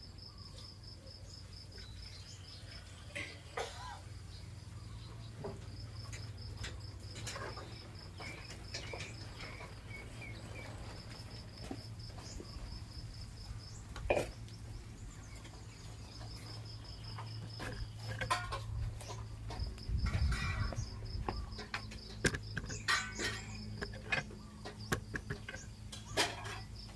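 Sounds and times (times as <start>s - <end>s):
insect chirping trill: 3.7s - 26.9s
clatter: 21.6s - 26.9s.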